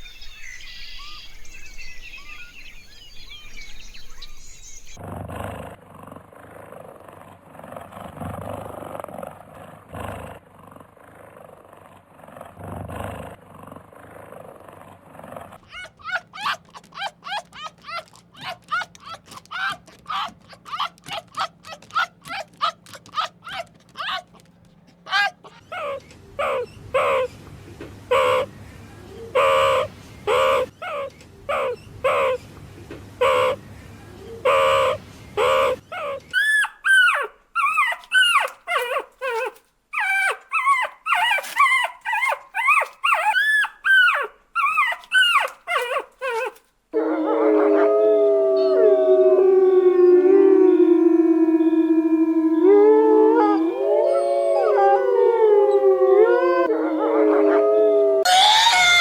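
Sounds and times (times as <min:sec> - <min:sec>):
dog barking and yelping: 0:15.6 - 0:27.3, 0:29.3 - 0:32.4, 0:34.4 - 0:46.6.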